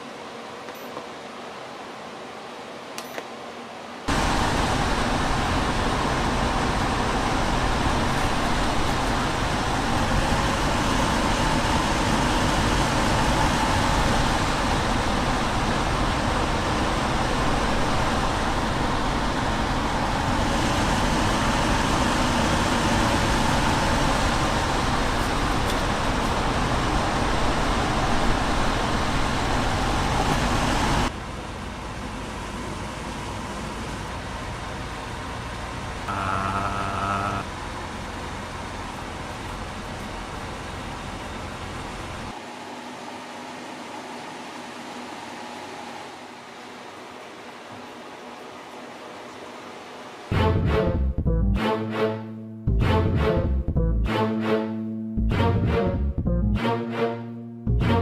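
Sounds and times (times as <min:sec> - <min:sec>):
air cooler fan rushing: 0:03.9 - 0:50.4.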